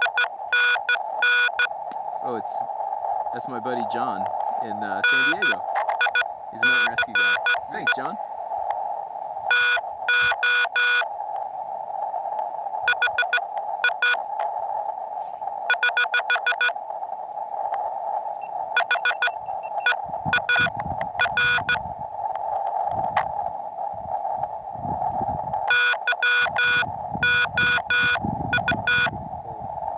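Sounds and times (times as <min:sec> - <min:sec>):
morse code tones: 0:00.0 - 0:01.7, 0:04.6 - 0:08.2, 0:09.5 - 0:11.1, 0:12.9 - 0:14.2, 0:15.7 - 0:16.8, 0:18.4 - 0:21.8, 0:25.7 - 0:29.1
radio band noise hiss: 0:00.0 - 0:29.9.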